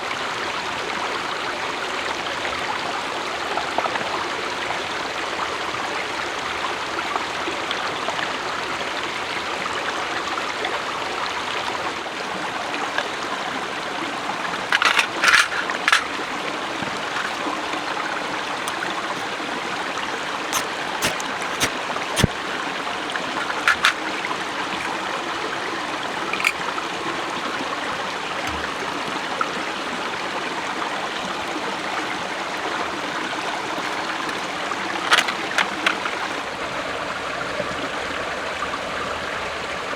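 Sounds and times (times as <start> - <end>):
flowing water rushing: 11.0 - 38.0
sharp clicks and knocks: 14.8 - 16.1, 16.8 - 17.4, 20.6 - 22.3, 23.4 - 24.0, 26.3 - 26.6, 28.5 - 28.8, 33.8 - 36.2.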